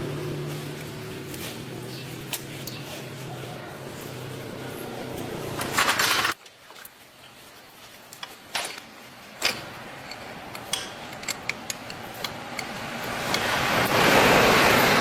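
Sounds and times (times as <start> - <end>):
hand tools clicking and tapping: 8.1 - 14.0.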